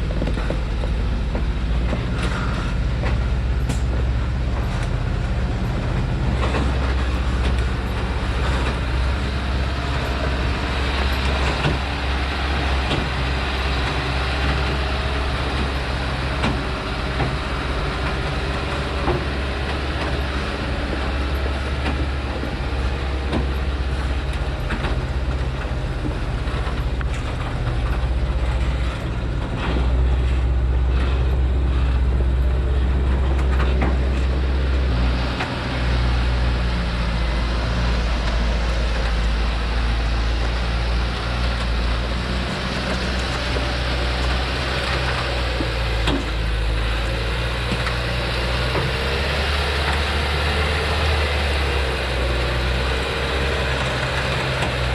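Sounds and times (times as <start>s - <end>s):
diesel truck engine humming: 0.0s - 54.9s.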